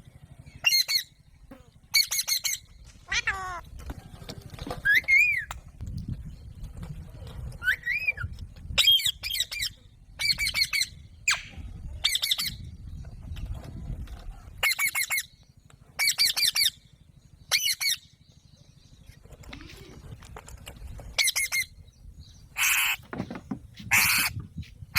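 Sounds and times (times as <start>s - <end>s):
parakeet squawking: 3.1s - 3.6s, 22.6s - 23.0s, 23.9s - 24.4s.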